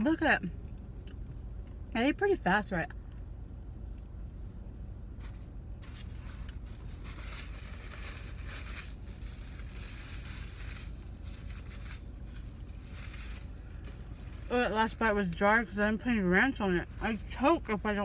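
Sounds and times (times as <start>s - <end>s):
food wrappers rustling: 5.2s - 14.5s.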